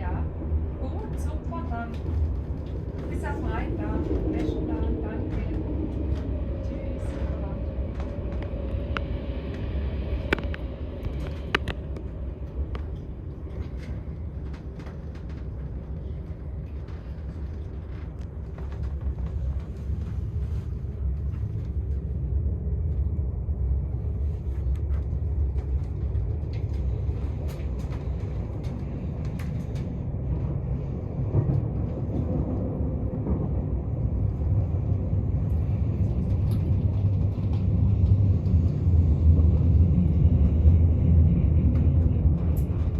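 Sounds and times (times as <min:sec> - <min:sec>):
train rumbling: 0:00.0 - 0:42.9.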